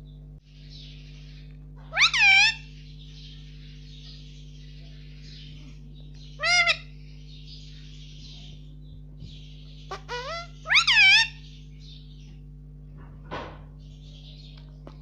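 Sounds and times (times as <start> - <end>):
steady low hum: 0.0 - 15.0
parrot squawking: 1.8 - 2.7, 6.3 - 7.0, 9.8 - 11.6.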